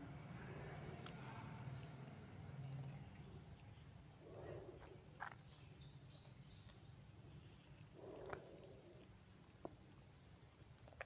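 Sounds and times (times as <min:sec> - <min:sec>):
faint high bird chirps: 0:05.2 - 0:07.7.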